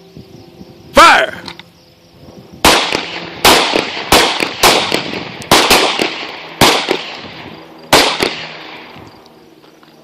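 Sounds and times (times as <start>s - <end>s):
handgun shots: 2.7s - 7.2s, 7.9s - 8.6s.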